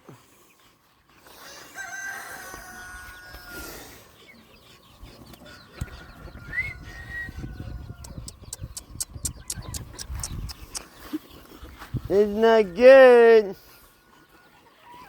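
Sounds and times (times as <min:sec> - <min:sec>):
rooster crowing: 0:01.5 - 0:03.8, 0:05.7 - 0:08.2.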